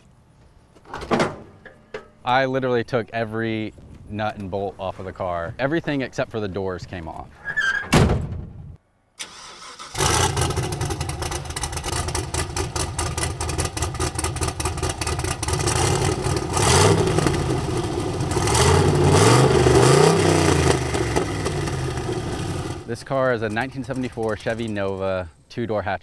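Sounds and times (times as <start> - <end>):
engine starting and revving: 9.2 - 24.6.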